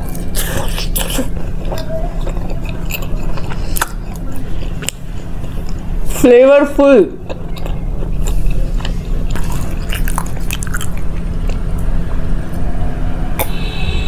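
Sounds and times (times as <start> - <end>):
chewing soft sweet: 0.0 - 5.9, 7.2 - 11.9
low rumble: 7.3 - 14.0.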